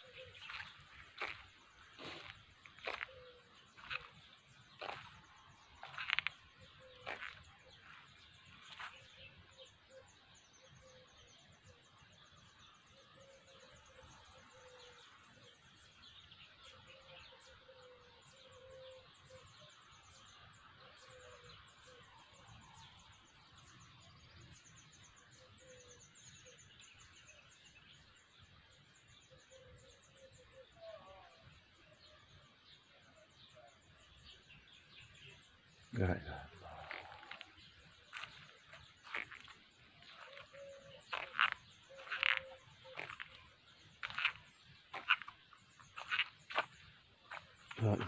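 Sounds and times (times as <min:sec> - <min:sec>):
short low calls: 0:35.9 - 0:38.3.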